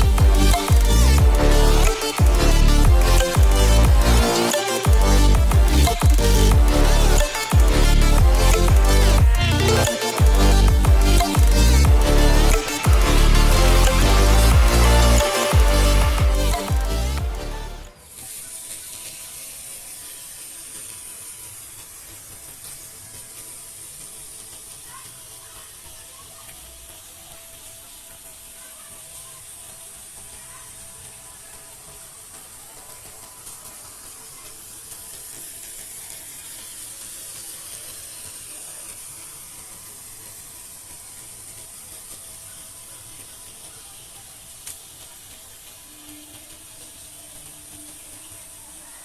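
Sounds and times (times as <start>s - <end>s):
background music: 0.0s - 18.0s
small electric motor whirring: 0.0s - 26.0s
hiss of churned water: 0.0s - 49.0s.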